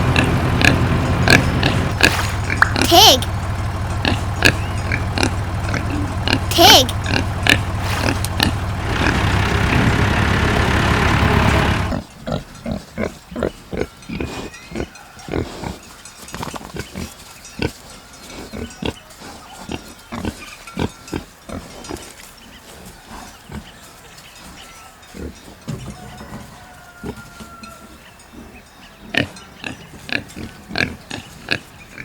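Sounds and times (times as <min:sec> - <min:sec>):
pigs grunting: 0:00.0 - 0:10.0, 0:11.7 - 0:15.9, 0:16.5 - 0:23.8, 0:25.1 - 0:32.0.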